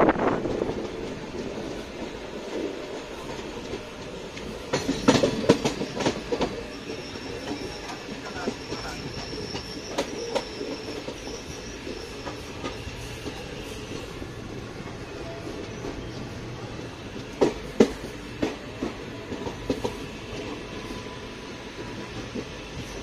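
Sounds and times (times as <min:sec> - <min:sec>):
train rumble: 0:00.0 - 0:23.0
wheels clacking over rail joints: 0:00.4 - 0:14.1
high wheel squeal: 0:04.8 - 0:14.2.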